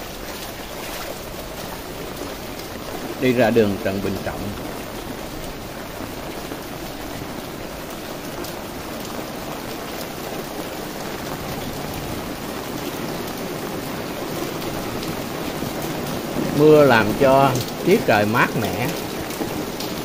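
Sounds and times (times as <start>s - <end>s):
rain falling steadily: 0.0s - 20.0s.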